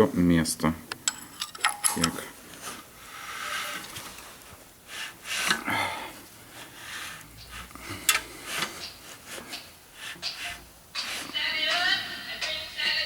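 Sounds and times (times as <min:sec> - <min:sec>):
hands and tools rubbing on engine: 0:02.4 - 0:05.6, 0:06.2 - 0:12.0.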